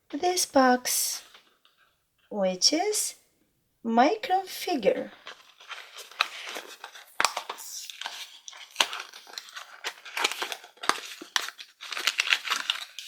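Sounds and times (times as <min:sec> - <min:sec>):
packaging crinkling: 0:05.1 - 0:13.0.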